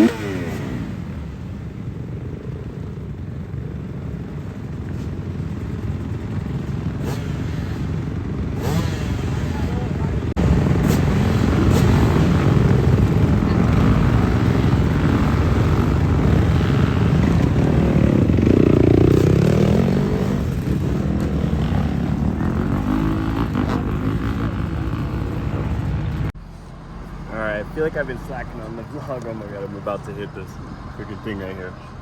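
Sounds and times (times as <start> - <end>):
dirt bike engine revving: 0.0 - 1.4, 5.6 - 26.3.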